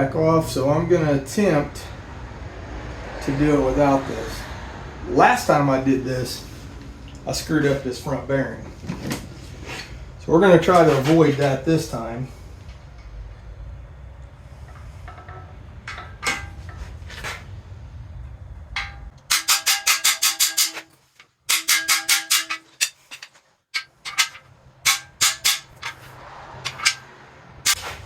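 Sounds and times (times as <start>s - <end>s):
hammer striking metal bar: 15.1s - 16.8s, 18.8s - 28.0s.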